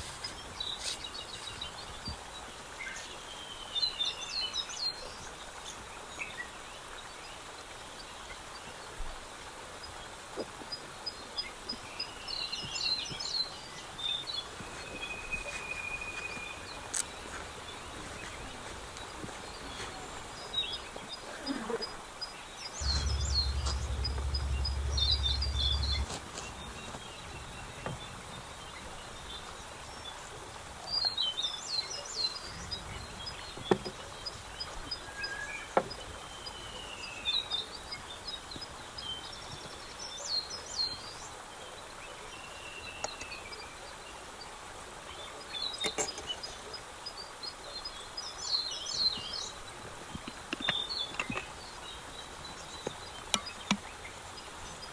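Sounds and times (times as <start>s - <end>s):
outdoor background hiss: 0.0s - 54.9s
small birds chirping: 0.0s - 54.9s
fast high ticking: 22.8s - 29.2s
low rumble: 22.8s - 30.1s.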